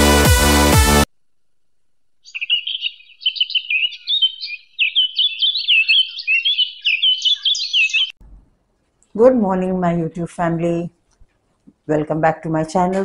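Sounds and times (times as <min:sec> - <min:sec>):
birds chirping and singing: 0:02.2 - 0:08.2.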